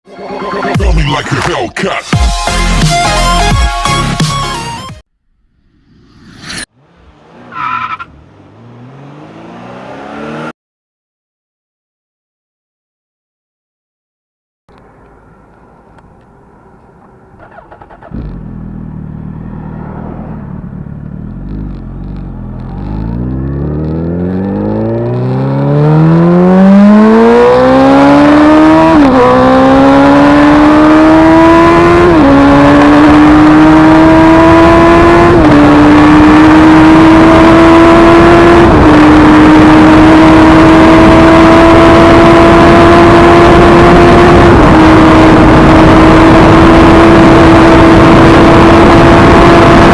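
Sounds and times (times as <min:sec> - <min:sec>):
car engine accelerating hard: 0:06.7 - 0:10.5, 0:17.4 - 0:49.9.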